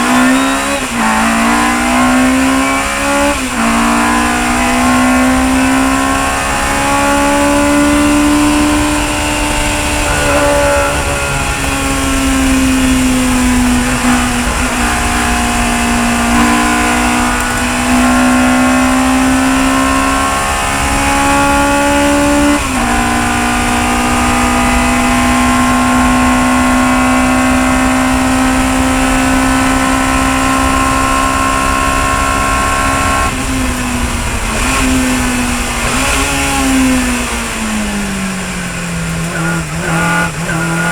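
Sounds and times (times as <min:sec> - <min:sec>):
racing car engine at high revs: 0:00.0 - 0:40.9.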